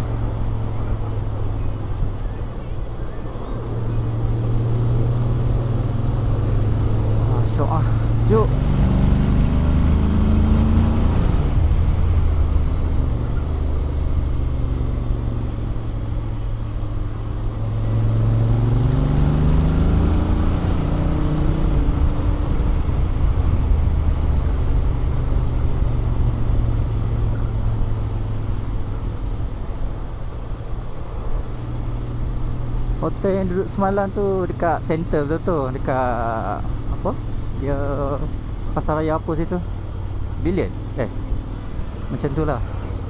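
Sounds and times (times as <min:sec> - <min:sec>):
scooter engine accelerating: 0:03.4 - 0:14.0.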